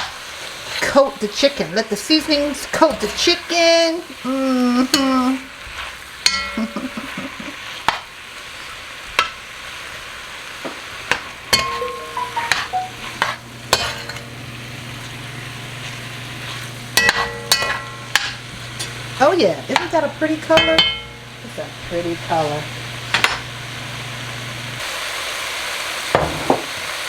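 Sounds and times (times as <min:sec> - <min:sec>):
chicken sizzling in a pot: 0:00.0 - 0:27.0
utensil knocking against pot: 0:20.6 - 0:21.2.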